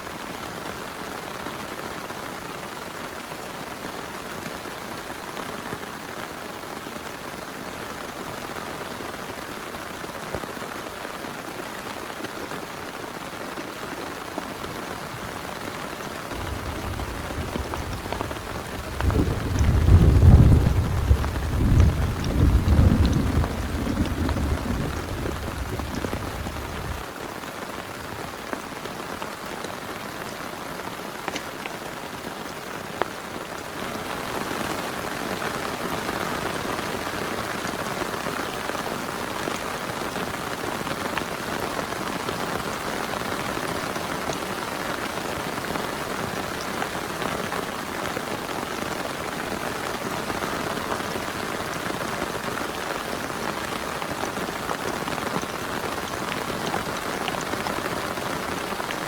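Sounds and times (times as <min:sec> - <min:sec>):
heavy rain: 0:00.0 - 0:59.0
sharp raindrop ticks: 0:16.3 - 0:27.0
low thunder rumble: 0:16.3 - 0:27.1.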